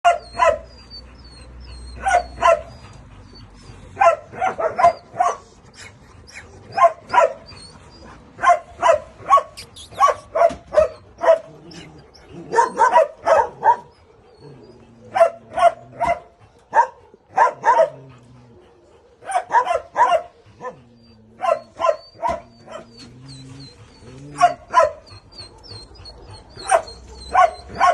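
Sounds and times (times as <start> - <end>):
dog barking: 0.0 - 0.7, 2.0 - 2.7, 4.0 - 5.5, 6.8 - 7.4, 8.4 - 11.5, 12.5 - 13.9, 15.1 - 18.0, 19.2 - 20.8, 21.4 - 22.9, 24.4 - 25.0, 26.6 - 27.9.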